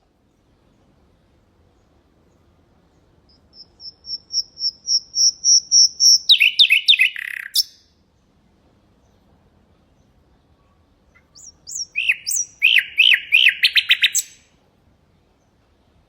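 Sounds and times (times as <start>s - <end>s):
nightingale singing: 1.8s - 8.0s, 11.1s - 14.6s.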